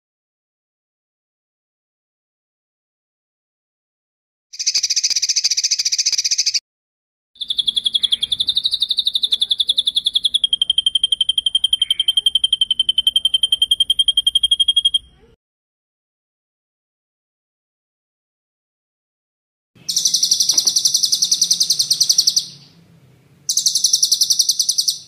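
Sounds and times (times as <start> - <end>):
songbird trilling: 4.6 - 6.6, 7.4 - 15.3, 19.8 - 22.8, 23.5 - 25.0.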